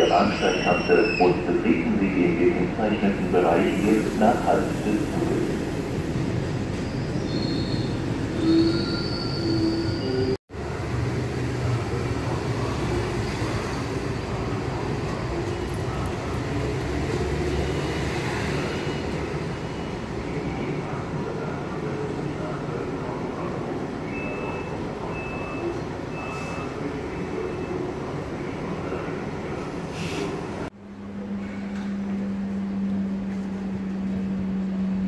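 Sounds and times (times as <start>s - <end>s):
freight train rumble and clatter: 0.0s - 35.0s
high-pitched wheel squeals: 6.8s - 10.4s.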